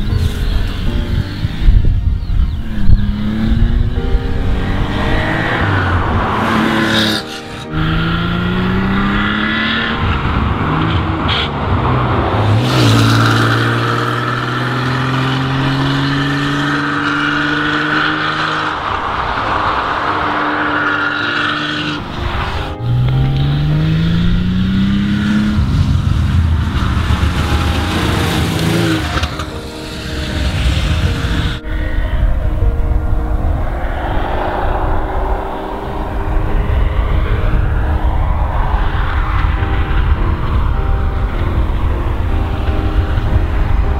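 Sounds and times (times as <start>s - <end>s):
car engine running: 22.3s - 31.6s.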